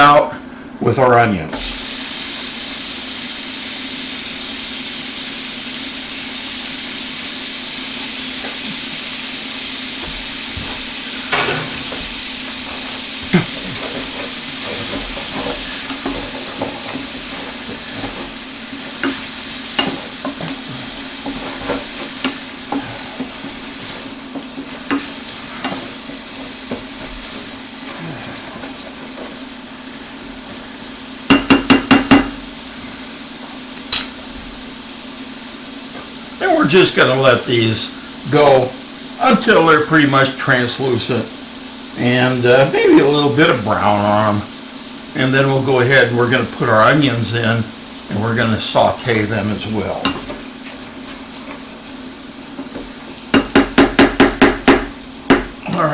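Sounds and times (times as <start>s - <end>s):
onions sizzling in a frying pan: 1.5s - 55.9s.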